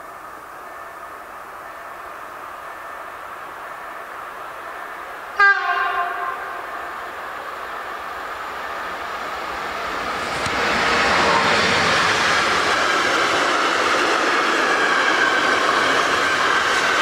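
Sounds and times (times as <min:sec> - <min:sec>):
train rumble: 0:00.0 - 0:17.0
train horn blast: 0:05.4 - 0:06.8.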